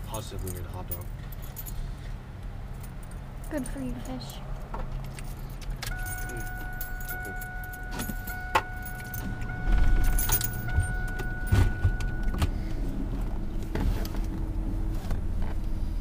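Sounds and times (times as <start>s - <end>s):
car interior low rumble: 0.0s - 16.0s
steady electronic tone: 5.9s - 13.6s.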